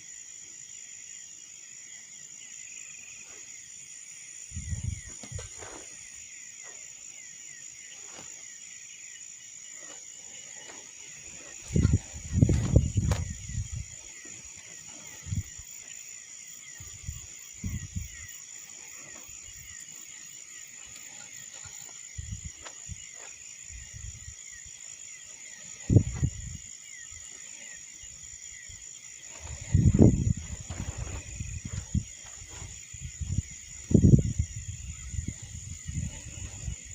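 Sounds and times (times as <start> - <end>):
crickets trilling: 0.0 - 36.9
wind buffeting microphone: 4.4 - 6.1, 10.7 - 15.9, 16.6 - 19.8, 21.6 - 24.8, 25.7 - 27.2, 28.0 - 36.9.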